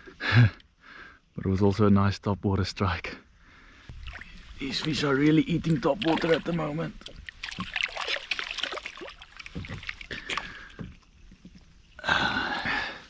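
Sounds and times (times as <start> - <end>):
water splashing: 3.9 - 13.0.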